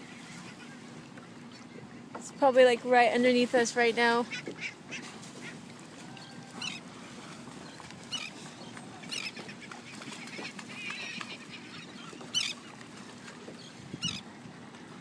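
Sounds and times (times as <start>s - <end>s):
high honking animal calls: 4.3s - 6.9s.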